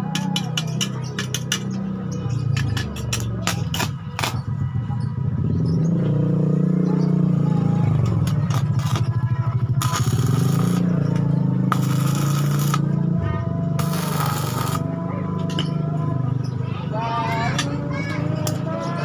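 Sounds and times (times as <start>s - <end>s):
engine running: 5.4s - 16.1s.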